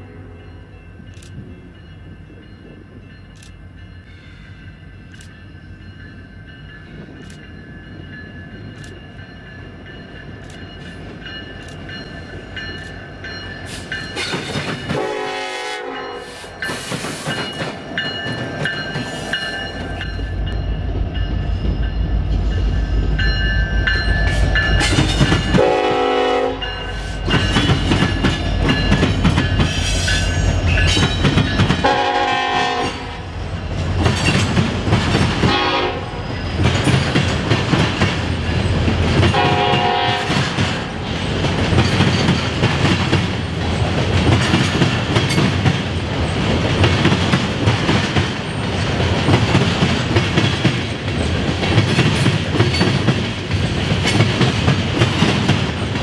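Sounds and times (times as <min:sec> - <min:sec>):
train air horn blasts: 0:14.9 - 0:16.5, 0:25.5 - 0:27.1, 0:31.8 - 0:33.3, 0:35.4 - 0:36.2, 0:39.3 - 0:40.5.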